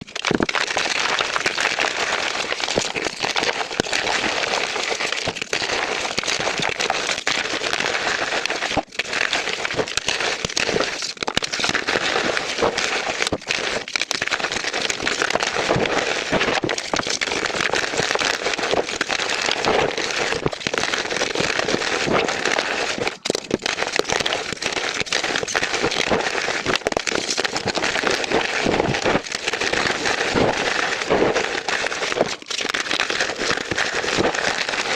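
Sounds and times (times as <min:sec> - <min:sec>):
chalk blocks crunching and crumbling: 0:08.5 - 0:34.9.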